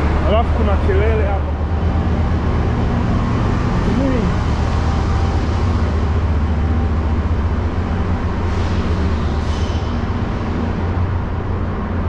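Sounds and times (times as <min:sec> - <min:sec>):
hazy background noise: 0:00.0 - 0:12.0
trains rumbling: 0:00.0 - 0:12.0.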